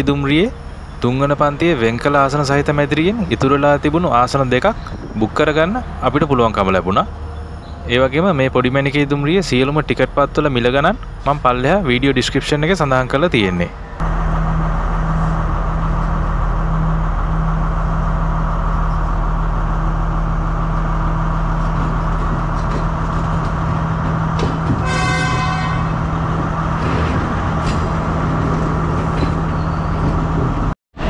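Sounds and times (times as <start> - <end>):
diesel train engine drone: 0.0 - 31.0
train horn: 24.8 - 26.1.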